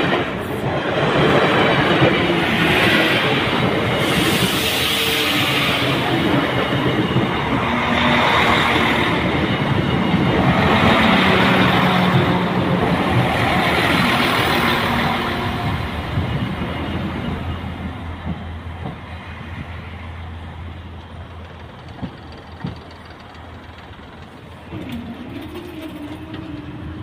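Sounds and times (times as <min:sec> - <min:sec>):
train wheels rumbling on rail: 0:00.0 - 0:27.0
diesel engine hum: 0:20.1 - 0:27.0.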